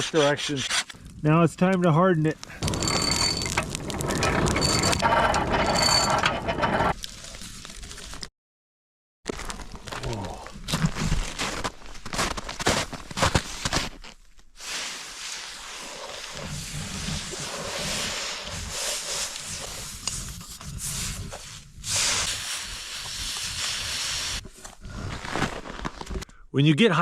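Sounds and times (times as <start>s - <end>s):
hot blade hissing in snow: 14.6s - 24.4s.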